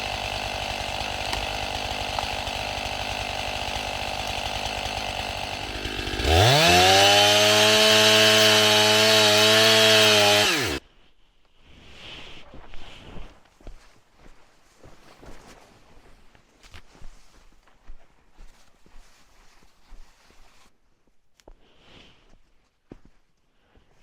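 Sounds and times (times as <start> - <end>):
chainsaw idling and revving: 0.0 - 10.8.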